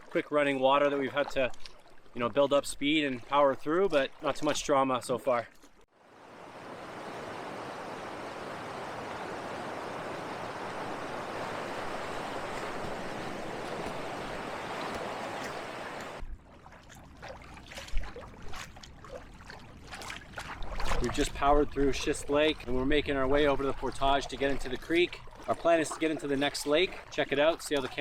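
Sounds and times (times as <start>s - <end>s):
fast-running creek water: 6.0s - 16.2s, 19.9s - 28.0s.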